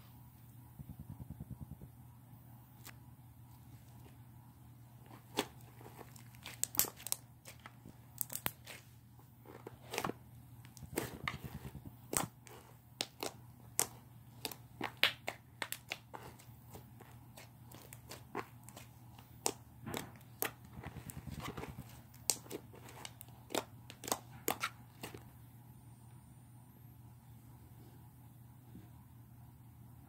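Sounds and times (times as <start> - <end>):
steady low hum: 0.0 - 30.0
slime squished by hand: 5.1 - 9.0, 10.7 - 25.2.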